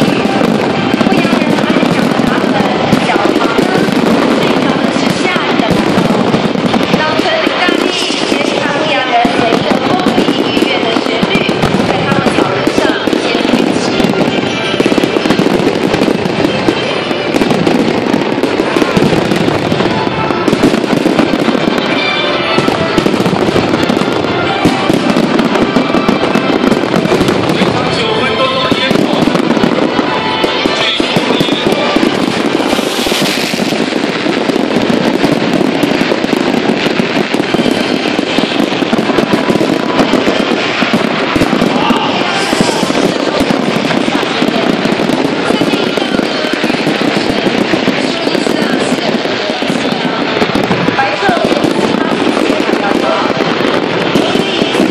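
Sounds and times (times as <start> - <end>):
crowd voices: 0.0 - 54.9
fireworks popping and banging: 0.0 - 54.9
music: 19.6 - 33.2.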